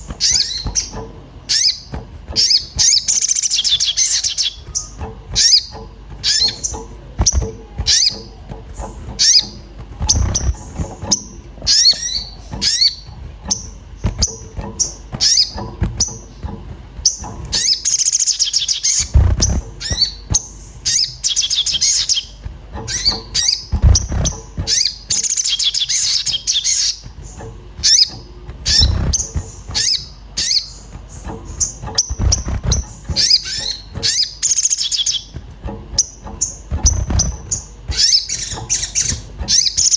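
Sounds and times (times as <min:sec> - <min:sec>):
songbird chirping and trilling: 0:00.0 - 0:39.9
dull low thumps: 0:18.9 - 0:21.3, 0:22.2 - 0:25.2, 0:26.8 - 0:34.4, 0:35.2 - 0:39.8.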